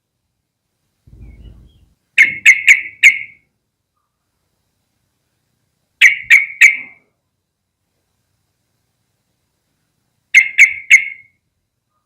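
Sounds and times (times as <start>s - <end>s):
bird calling sharp notes: 1.1s - 3.4s, 6.0s - 7.0s, 10.4s - 11.3s.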